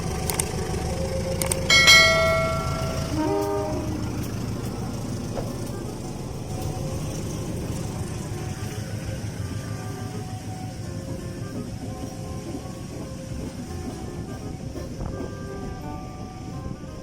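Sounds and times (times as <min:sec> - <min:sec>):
train rumbling: 0:00.0 - 0:17.0
train air horn blasts: 0:01.7 - 0:07.0, 0:07.6 - 0:17.0.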